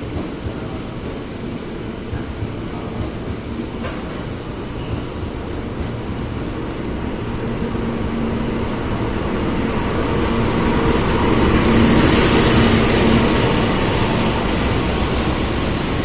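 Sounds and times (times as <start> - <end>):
train rumbling: 0.0 - 16.0
high hiss: 10.7 - 16.0.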